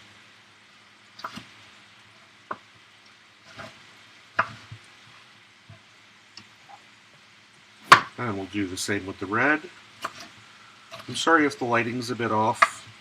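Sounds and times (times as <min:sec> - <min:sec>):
chicken sizzling in oil: 0:00.0 - 0:13.0
knife chopping on cutting board: 0:04.4 - 0:04.8, 0:07.8 - 0:08.2, 0:10.0 - 0:10.3.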